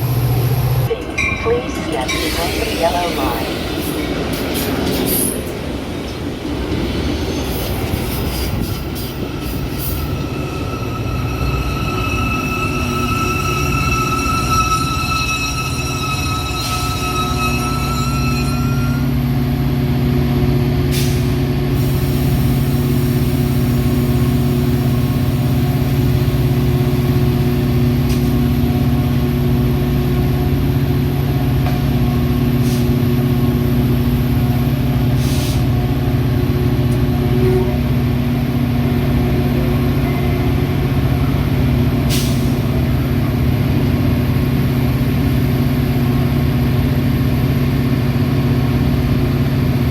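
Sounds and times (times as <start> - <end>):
diesel locomotive humming: 0.0 - 49.9
train brakes squealing: 7.0 - 19.2
air brake hisses: 20.9 - 23.0, 35.2 - 35.7, 42.1 - 42.7.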